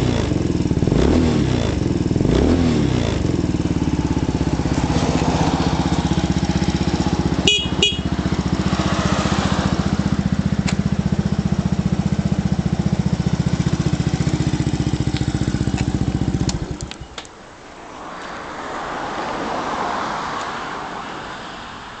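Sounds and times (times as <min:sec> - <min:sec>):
scooter engine idling: 0:00.0 - 0:17.2
broad rushing noise: 0:03.9 - 0:07.5
short horn beeps: 0:07.4 - 0:08.2.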